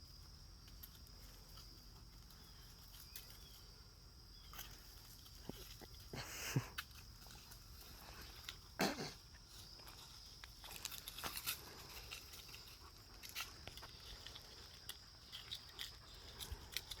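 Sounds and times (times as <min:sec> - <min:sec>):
dogs scuffling clicks and rustles: 0:09.9 - 0:17.0.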